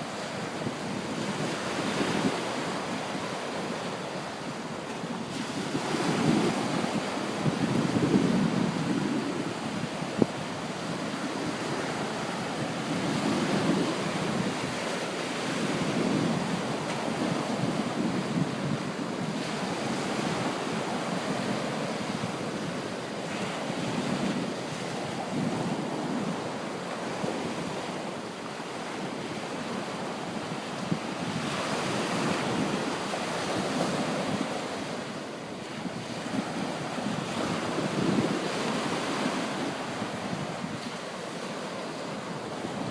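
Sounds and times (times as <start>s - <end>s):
small waves washing on shore: 0.0s - 42.9s
wind buffeting microphone: 0.0s - 42.9s.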